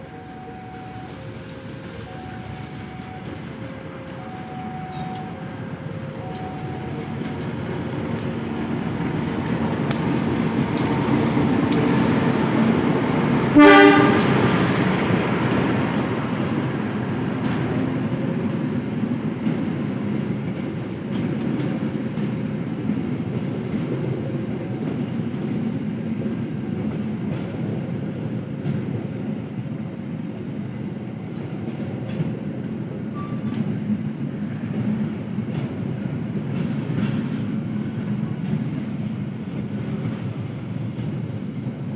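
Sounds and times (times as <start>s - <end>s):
train rumbling past: 0.0s - 41.9s
train horn blast: 13.5s - 14.6s.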